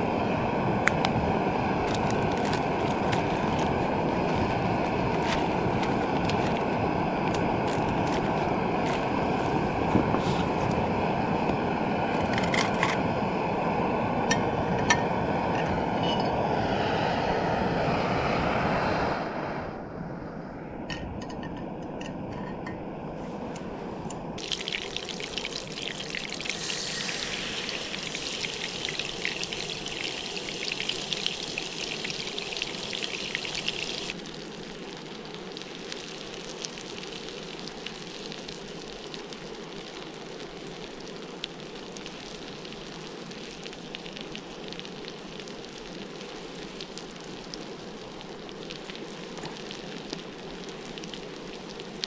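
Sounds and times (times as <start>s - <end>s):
food sizzling in a frying pan: 24.4s - 52.0s.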